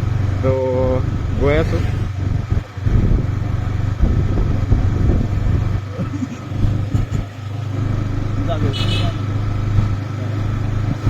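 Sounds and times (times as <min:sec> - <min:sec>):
motorcycle engine humming: 0:00.0 - 0:11.0.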